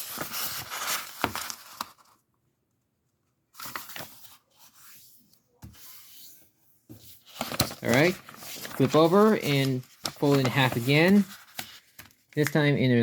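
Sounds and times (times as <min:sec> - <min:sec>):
paper rustling and crinkling: 0:00.0 - 0:02.2, 0:03.5 - 0:05.0, 0:06.9 - 0:12.8.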